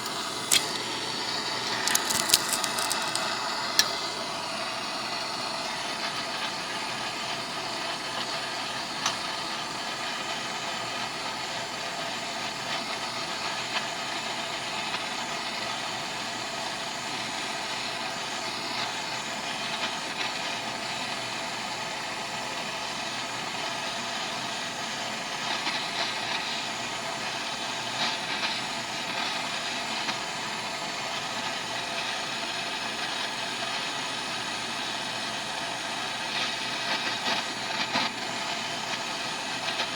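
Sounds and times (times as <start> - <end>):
arc welding sizzling: 0.0 - 7.3.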